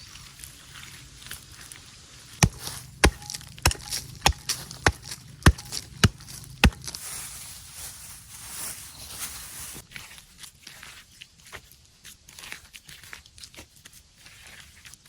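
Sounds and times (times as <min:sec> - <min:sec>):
blade chopping wood: 0:02.4 - 0:07.0.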